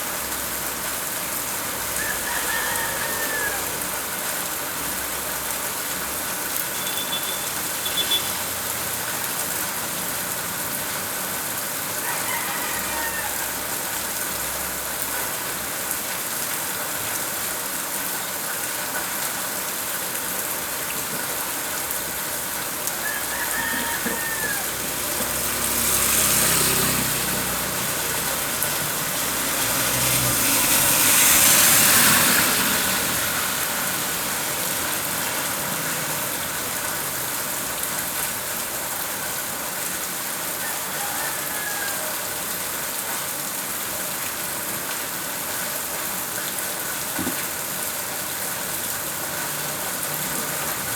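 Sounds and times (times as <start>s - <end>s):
steady rain falling: 0.0s - 50.9s
rooster crowing faintly: 1.9s - 4.0s, 12.0s - 14.0s, 22.8s - 33.6s, 40.5s - 42.6s.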